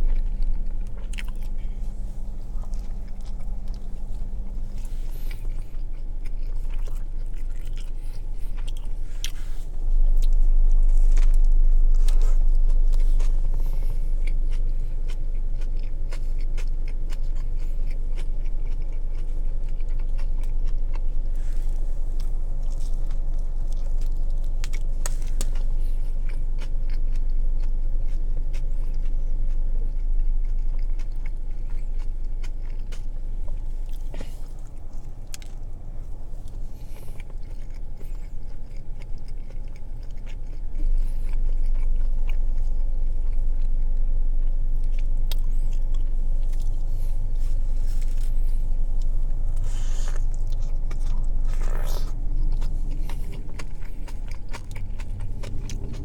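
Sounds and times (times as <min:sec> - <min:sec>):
chewing and biting sandwich: 0:00.0 - 0:56.0
low hum: 0:00.0 - 0:56.0
wet mouth clicks: 0:49.0 - 0:56.0.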